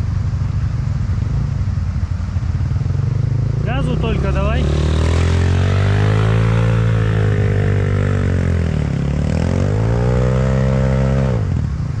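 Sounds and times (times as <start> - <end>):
off-road vehicle engine revving: 2.8 - 12.0.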